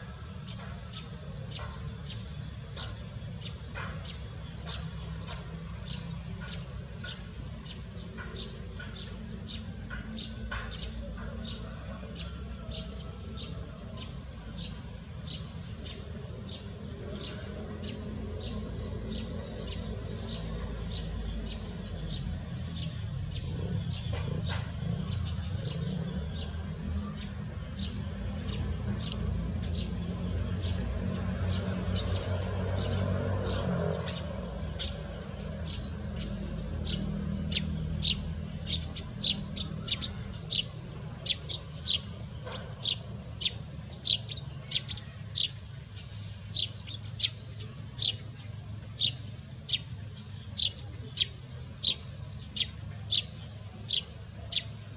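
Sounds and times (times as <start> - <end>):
insects droning: 0.0 - 54.9.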